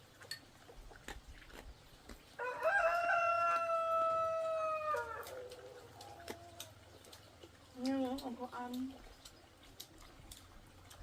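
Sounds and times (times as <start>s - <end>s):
rooster crowing: 2.4s - 6.2s.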